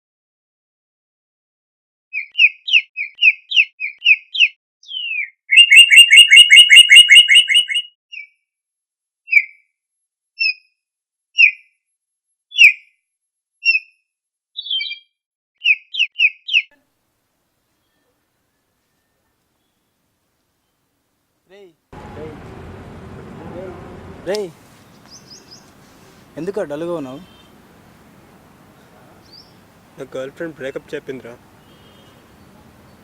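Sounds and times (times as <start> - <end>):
birds chirping: 2.2 - 8.3, 22.0 - 33.0.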